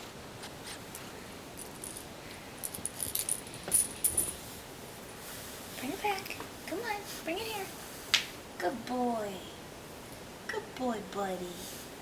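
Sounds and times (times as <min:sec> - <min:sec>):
light metallic jingling: 0:01.6 - 0:04.5.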